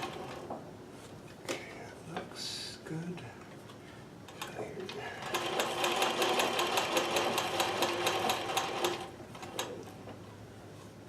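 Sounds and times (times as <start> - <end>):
sewing machine motor hum: 5.2 - 9.7
sewing machine needle strokes: 5.2 - 9.7.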